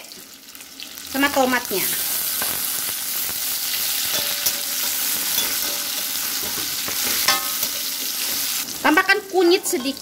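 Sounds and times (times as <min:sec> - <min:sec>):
vegetables sizzling in hot oil: 0:00.0 - 0:10.0
spatula scraping a wok: 0:03.7 - 0:08.8.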